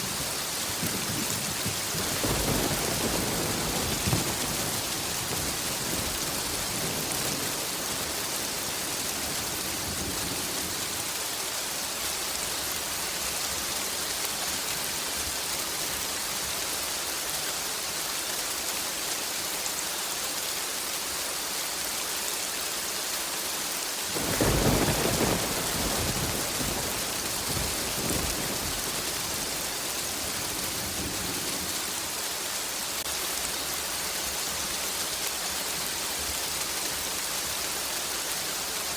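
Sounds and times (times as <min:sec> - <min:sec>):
thunder clap and rumble: 0:00.0 - 0:08.3, 0:24.2 - 0:32.0
steady rain: 0:00.0 - 0:38.9.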